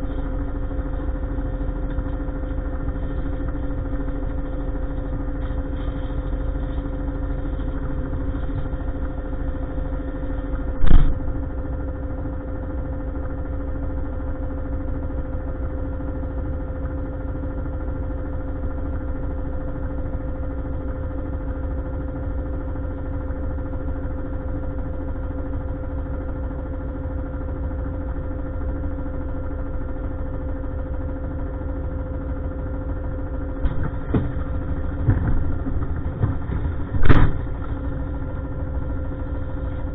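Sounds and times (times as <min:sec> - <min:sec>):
truck engine idling: 0:00.0 - 0:13.6, 0:32.3 - 0:39.9.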